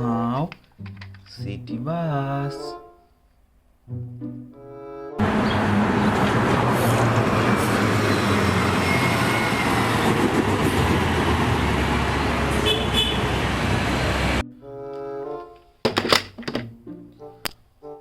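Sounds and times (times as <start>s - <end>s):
bus engine running: 5.2s - 14.4s
road traffic noise: 5.2s - 14.4s.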